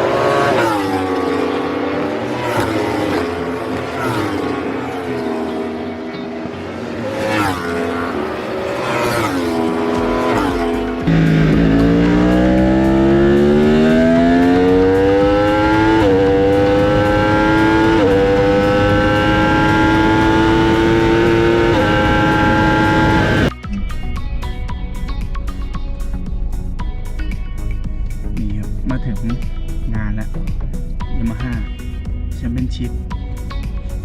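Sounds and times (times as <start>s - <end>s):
motorcycle engine accelerating hard: 0.0s - 23.5s
motorcycles passing: 0.0s - 23.5s.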